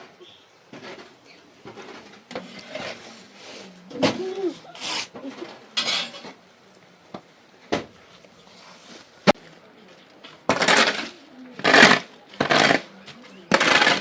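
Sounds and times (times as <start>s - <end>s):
pots and metal utensils clattering: 0.0s - 6.4s, 10.3s - 14.0s.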